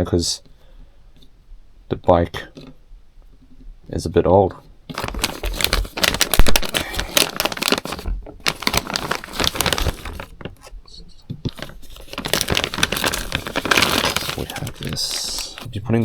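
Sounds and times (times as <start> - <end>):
hands rustling: 4.9 - 15.7.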